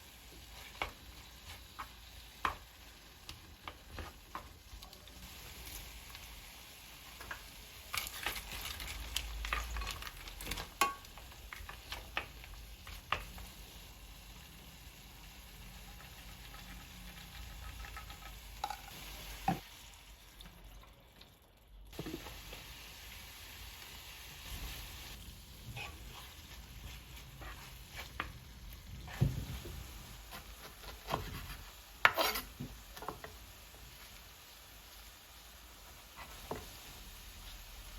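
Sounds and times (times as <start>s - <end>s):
food sizzling in a pan: 0.0s - 20.8s, 21.9s - 37.9s
utensil stirring and scraping: 25.6s - 28.4s, 30.3s - 33.2s.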